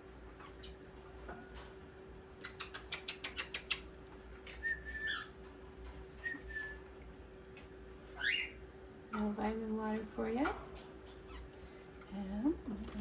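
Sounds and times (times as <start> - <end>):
parrot clicks: 2.4 - 3.9
parrot whistling: 4.5 - 5.4, 8.2 - 8.6.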